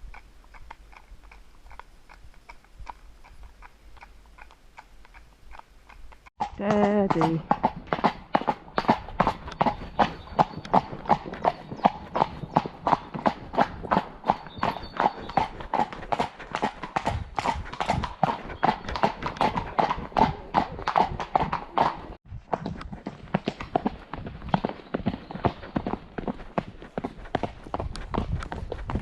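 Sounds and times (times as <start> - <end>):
hooves clip-clopping on hard road: 0.0 - 29.0.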